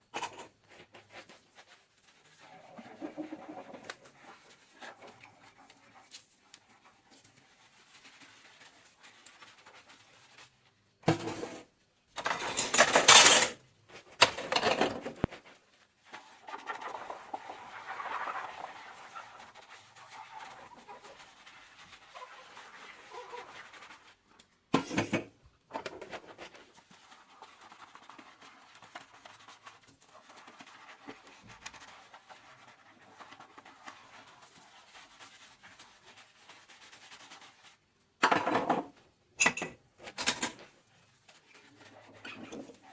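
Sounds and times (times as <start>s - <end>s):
dishes clinking in a sink: 12.2s - 13.6s, 38.2s - 40.6s.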